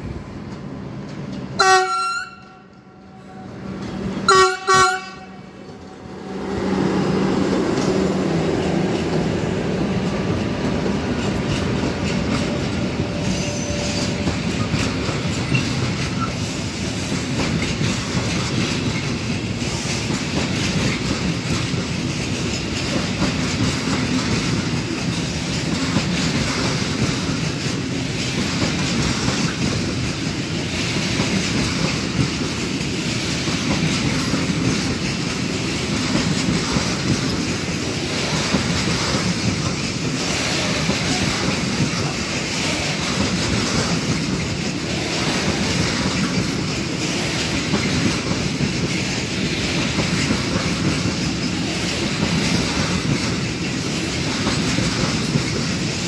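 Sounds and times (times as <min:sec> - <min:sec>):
train wheels clattering over rails: 0:00.0 - 0:02.6, 0:03.5 - 0:56.0
locomotive drone: 0:00.0 - 0:17.9.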